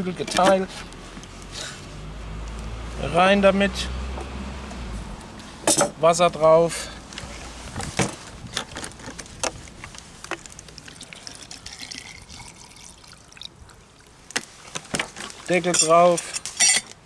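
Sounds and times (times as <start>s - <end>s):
water pouring into pot: 10.7s - 14.1s.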